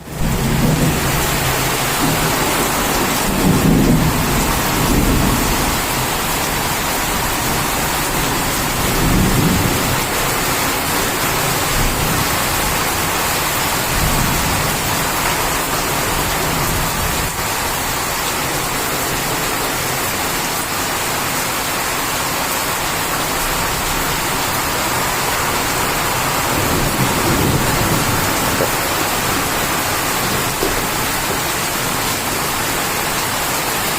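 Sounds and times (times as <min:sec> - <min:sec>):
heavy rain falling: 0:00.0 - 0:33.9
low thunder rumbles: 0:00.1 - 0:17.4, 0:23.7 - 0:33.0.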